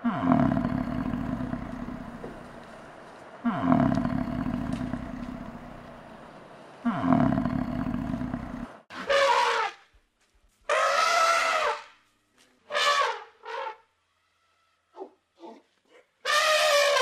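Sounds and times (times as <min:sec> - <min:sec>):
cow bellowing: 0:00.0 - 0:02.8, 0:03.4 - 0:06.1, 0:06.9 - 0:08.7.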